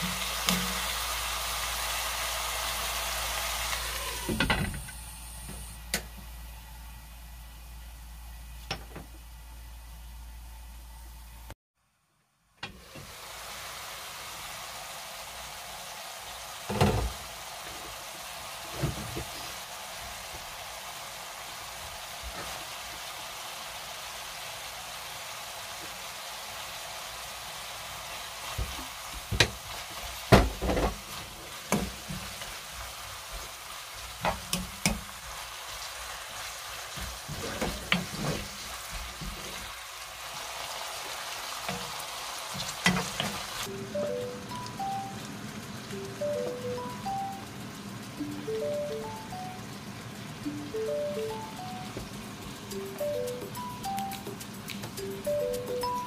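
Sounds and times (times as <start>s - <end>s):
fern sizzling in a frying pan: 0.0s - 8.5s, 12.7s - 56.0s
wooden spoon scraping a pan: 37.0s - 39.7s.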